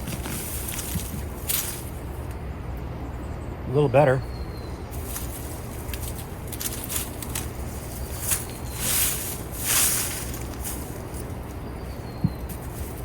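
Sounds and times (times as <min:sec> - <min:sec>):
digging through soil: 0:00.0 - 0:02.0, 0:04.9 - 0:11.8
short hissing sweeps: 0:08.2 - 0:11.0.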